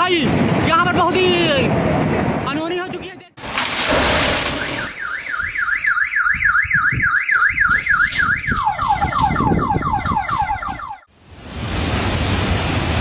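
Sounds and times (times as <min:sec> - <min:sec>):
car alarm siren warbling: 0:04.6 - 0:11.1
steady rushing noise: 0:11.3 - 0:13.0.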